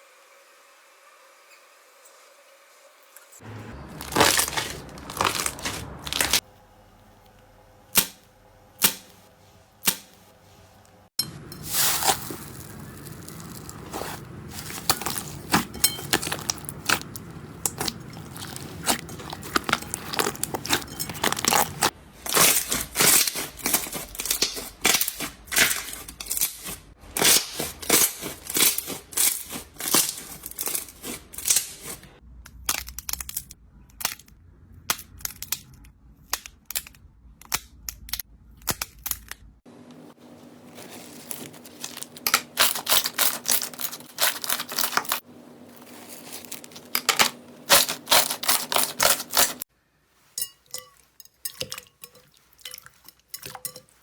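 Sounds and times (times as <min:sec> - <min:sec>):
slime crackling and popping: 0:04.0 - 0:06.4, 0:11.7 - 0:34.2, 0:41.2 - 0:45.2.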